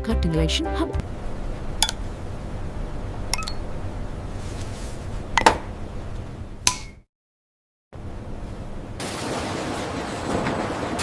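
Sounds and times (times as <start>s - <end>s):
factory machinery hum: 1.0s - 6.6s, 8.0s - 11.0s.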